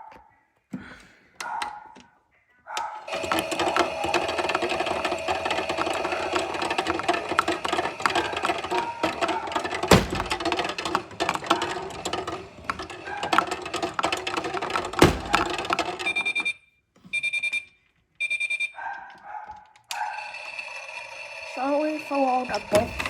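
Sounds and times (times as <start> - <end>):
plastic objects clattering: 3.1 - 16.5.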